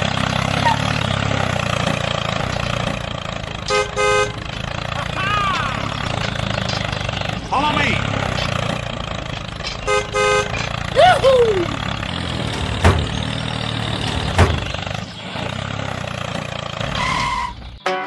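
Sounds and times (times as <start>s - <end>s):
short horn-like toots: 16.8s - 17.6s.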